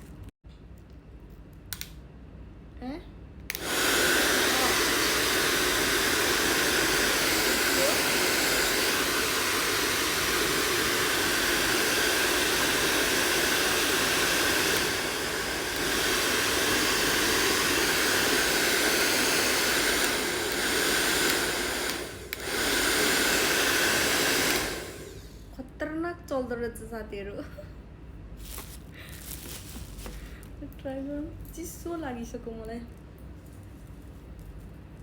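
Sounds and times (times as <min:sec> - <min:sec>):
hair dryer blowing air: 0:03.5 - 0:25.5.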